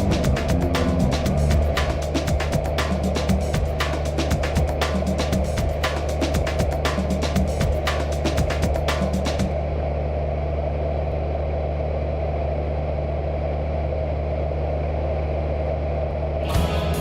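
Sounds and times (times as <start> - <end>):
background music: 0.0 - 9.5, 16.4 - 17.0
propeller plane engine droning: 0.0 - 17.0.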